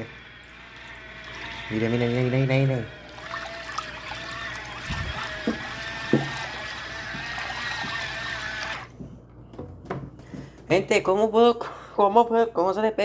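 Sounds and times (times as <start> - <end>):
churning trickling water: 0.0 - 8.9
washing machine motor hum: 0.0 - 11.2.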